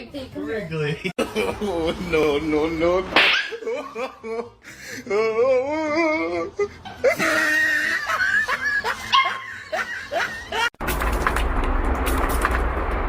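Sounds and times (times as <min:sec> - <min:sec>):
dog yipping and barking: 0:03.2 - 0:03.6, 0:09.1 - 0:09.5
steady rumbling noise: 0:10.8 - 0:13.0.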